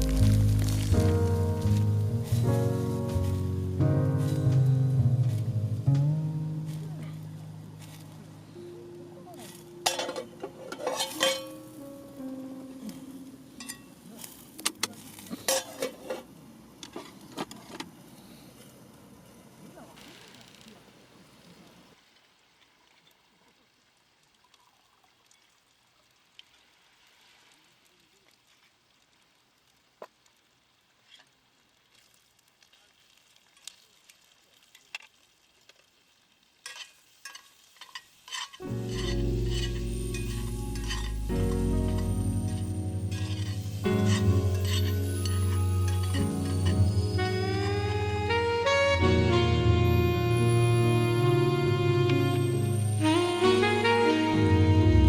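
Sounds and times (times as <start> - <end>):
background music: 0.0 - 14.0, 38.6 - 55.0
campfire crackling and popping: 0.0 - 18.0, 27.8 - 48.4.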